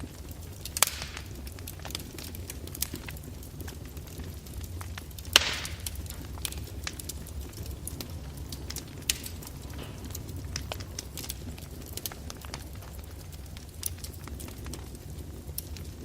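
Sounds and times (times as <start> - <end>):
fire hiss: 0.0 - 16.0
wood fire crackling and popping: 0.0 - 16.0
low rumble: 4.7 - 14.9.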